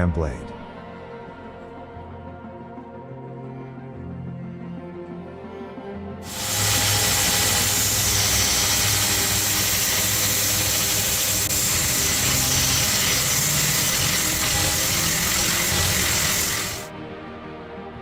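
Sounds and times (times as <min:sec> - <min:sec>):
background music: 0:00.0 - 0:18.0
workshop machine hissing: 0:06.2 - 0:16.9.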